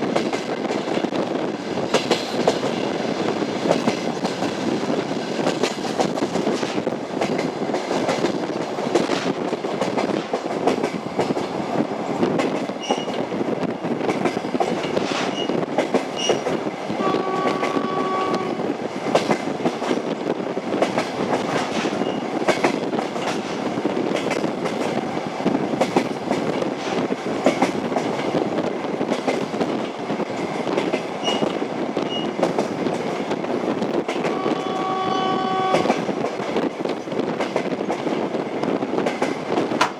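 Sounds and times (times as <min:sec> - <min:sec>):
train rumble: 0:00.0 - 0:39.9
train wheels clickety-clack: 0:00.0 - 0:39.9
train horn: 0:17.0 - 0:18.7, 0:34.2 - 0:36.1.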